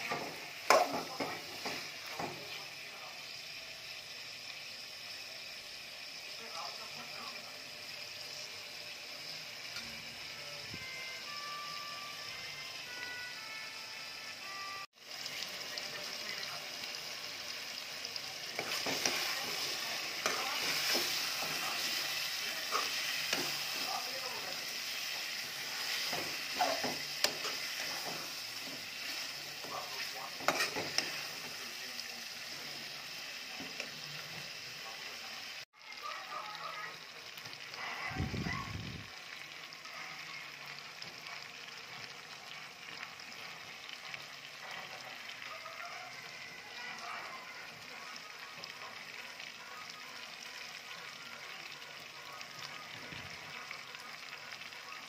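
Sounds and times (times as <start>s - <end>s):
chicken sizzling in a pot: 0.0s - 55.0s
spoon stirring against pot: 18.5s - 24.0s, 25.0s - 31.5s.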